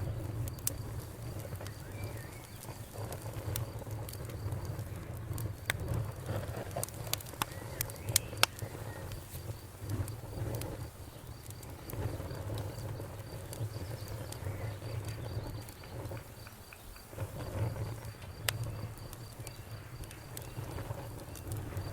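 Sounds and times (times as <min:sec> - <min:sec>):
campfire rumble: 0:00.0 - 0:21.9
wood crackles and pops: 0:00.0 - 0:21.9.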